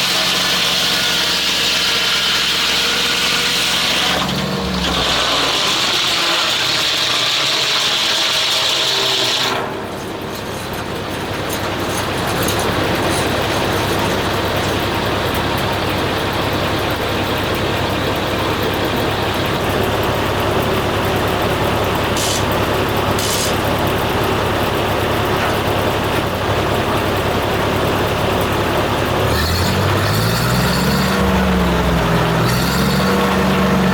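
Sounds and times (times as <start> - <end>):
machinery engine rattling: 9.6 - 33.9
high cutting whine: 22.0 - 23.8.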